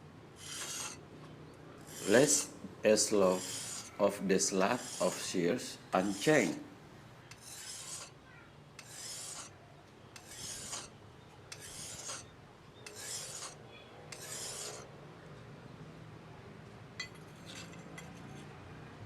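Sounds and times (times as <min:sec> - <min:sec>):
blade scraping on whetstone: 0:00.4 - 0:01.0, 0:01.8 - 0:05.4, 0:06.0 - 0:06.6, 0:07.3 - 0:08.2, 0:08.8 - 0:09.5, 0:10.2 - 0:10.9, 0:11.5 - 0:14.9, 0:17.0 - 0:18.6.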